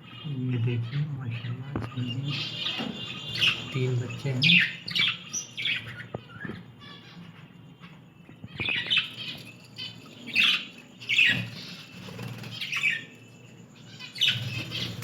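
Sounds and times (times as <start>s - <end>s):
budgerigars squawking: 0.1s - 7.4s, 13.9s - 15.0s.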